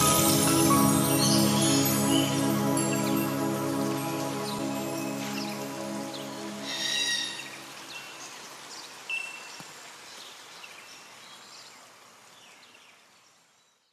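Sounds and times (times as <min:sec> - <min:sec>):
soft background music: 0:00.0 - 0:07.8
faint outdoor hiss: 0:00.0 - 0:13.9.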